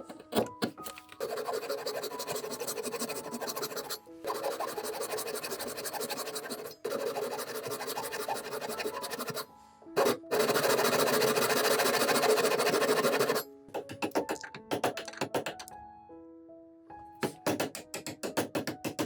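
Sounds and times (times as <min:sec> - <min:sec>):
background music: 0:00.0 - 0:19.0
hand tool scraping wood: 0:01.2 - 0:09.4, 0:10.0 - 0:13.4.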